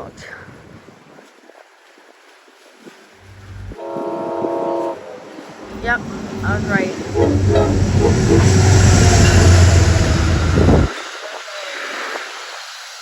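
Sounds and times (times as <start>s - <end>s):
train wheels rumbling on rail: 3.2s - 10.9s.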